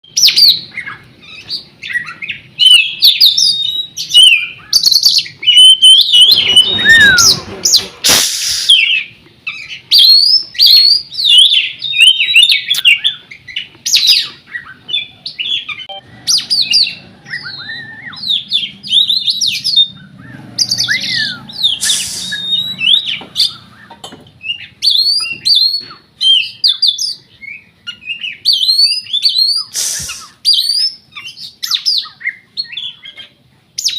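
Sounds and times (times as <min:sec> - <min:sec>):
bird singing varied whistled song: 0:00.0 - 0:33.9
bird harsh rasping notes: 0:05.4 - 0:09.8, 0:15.6 - 0:26.6, 0:29.6 - 0:31.4.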